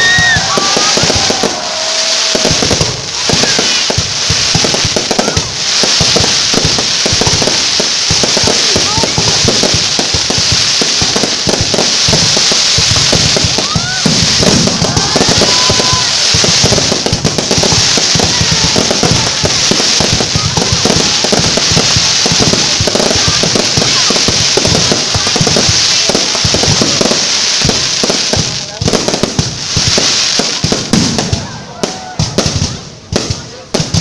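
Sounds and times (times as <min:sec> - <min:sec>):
firework whistles: 0:00.0 - 0:32.8
fireworks bangs and crackling: 0:00.0 - 0:34.0.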